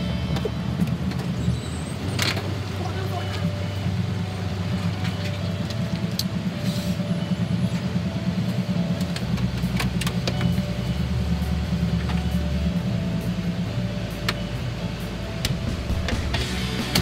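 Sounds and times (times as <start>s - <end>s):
deep hum: 0.0s - 17.0s
train rumble from inside: 0.0s - 17.0s
sharp clicks and rattles: 8.4s - 10.8s.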